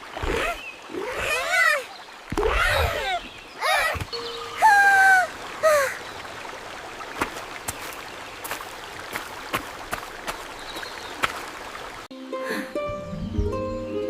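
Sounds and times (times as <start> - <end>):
sharp water drips: 0.0 - 12.1
trickling water: 0.0 - 12.1
plucked-string tune: 12.2 - 14.0.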